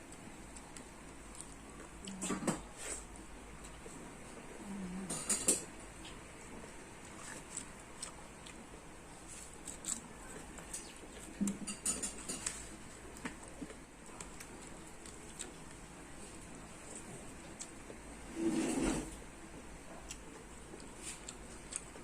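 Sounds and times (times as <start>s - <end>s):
chewing food smacks and clicks: 20.0s - 22.0s.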